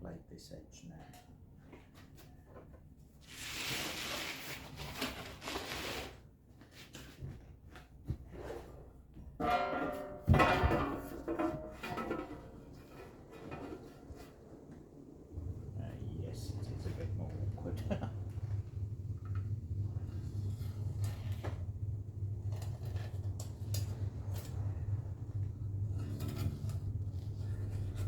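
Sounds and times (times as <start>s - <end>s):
cardboard rustling and scraping: 3.2s - 9.1s.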